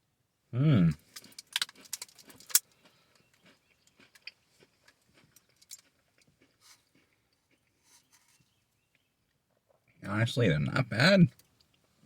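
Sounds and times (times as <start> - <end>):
crunchy chewing: 0.9 - 9.8
cookie snapping: 1.2 - 2.7.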